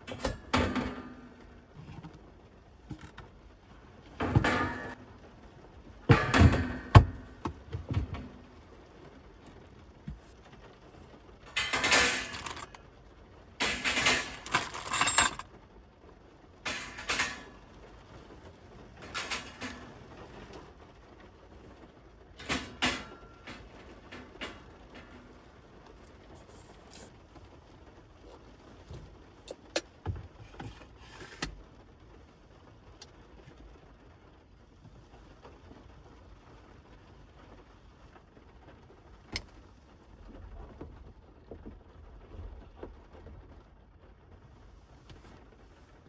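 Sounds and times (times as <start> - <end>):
rustling and clattering: 0.0 - 15.5, 16.5 - 27.2, 28.2 - 31.5
sharp clicks and knocks: 6.1 - 10.4, 11.5 - 12.8, 13.6 - 15.4, 16.7 - 18.4, 19.0 - 20.7, 22.4 - 27.1
rain on car: 31.6 - 45.9.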